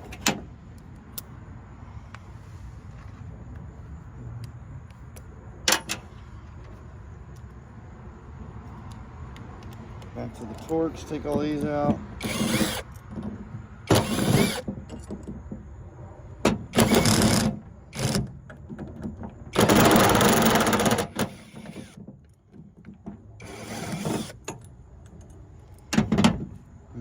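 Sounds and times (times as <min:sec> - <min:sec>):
screwdriver unscrewing screws: 0:10.4 - 0:13.1, 0:13.9 - 0:15.1, 0:23.4 - 0:24.6.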